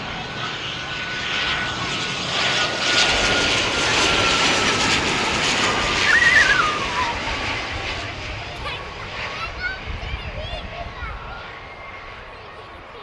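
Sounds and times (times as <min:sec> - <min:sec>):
airliner engine rush: 0:00.0 - 0:13.0
engine whine falling in pitch: 0:01.0 - 0:10.0
wavering chirp: 0:05.7 - 0:07.7.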